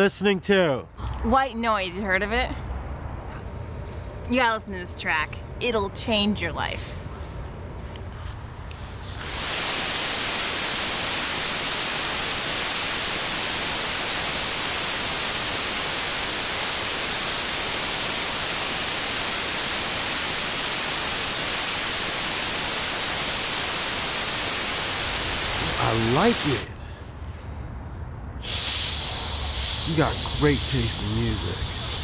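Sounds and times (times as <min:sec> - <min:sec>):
white noise hiss: 0:08.5 - 0:26.9, 0:28.3 - 0:32.0.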